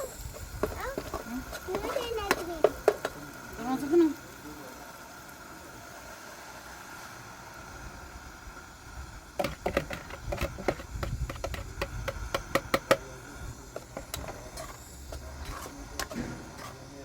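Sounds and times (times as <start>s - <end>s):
sharp knocks and clatters: 9.4s - 13.1s, 15.4s - 16.8s.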